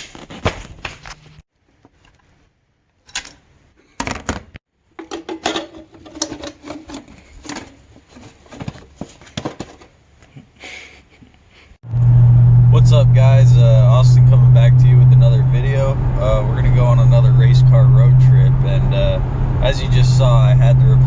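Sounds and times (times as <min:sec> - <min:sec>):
hand tools clicking and knocking: 0:05.0 - 0:07.9.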